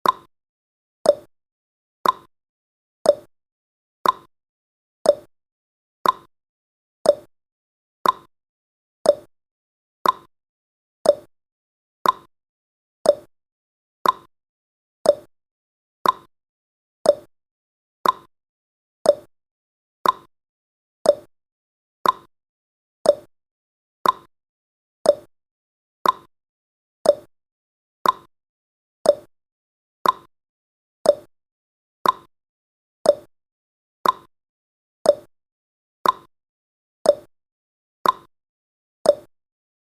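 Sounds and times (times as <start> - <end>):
clock tick-tock ticking: 0.0 - 0.3, 1.0 - 1.3, 2.0 - 2.3, 3.1 - 3.3, 4.0 - 4.3, 5.1 - 5.3, 6.0 - 6.3, 7.1 - 7.3, 8.0 - 8.3, 9.0 - 9.3, 10.0 - 10.3, 11.0 - 11.3, 12.0 - 12.3, 13.0 - 13.3, 14.0 - 14.3, 15.0 - 15.3, 16.0 - 16.3, 17.0 - 17.3, 18.0 - 18.3, 19.0 - 19.3, 20.0 - 20.3, 21.0 - 21.3, 22.0 - 22.3, 23.0 - 23.3, 24.0 - 24.3, 25.0 - 25.3, 26.0 - 26.3, 27.0 - 27.3, 28.0 - 28.3, 29.0 - 29.3, 30.0 - 30.3, 31.0 - 31.3, 32.0 - 32.3, 33.0 - 33.3, 34.0 - 34.3, 35.0 - 35.3, 36.0 - 36.3, 37.1 - 37.3, 38.0 - 38.3, 39.1 - 39.3.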